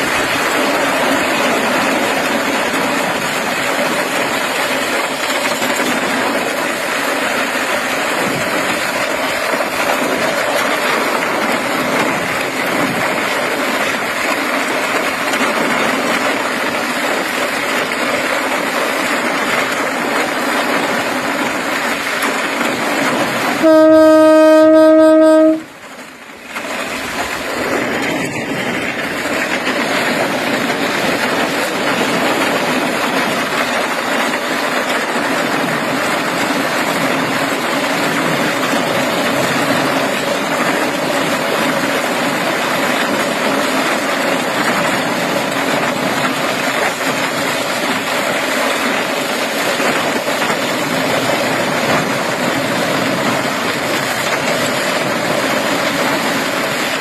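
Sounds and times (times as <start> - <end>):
train running: 0.0 - 57.0
train horn blast: 23.6 - 25.8.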